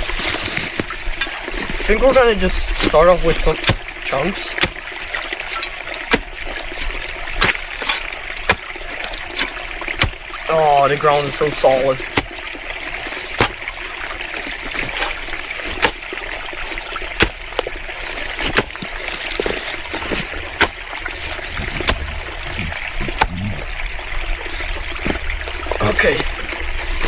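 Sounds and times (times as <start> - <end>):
stream trickling: 0.0 - 27.0
shovel chopping hard ground: 0.4 - 10.3, 11.4 - 12.4, 13.3 - 13.8, 14.5 - 16.2, 17.1 - 23.6.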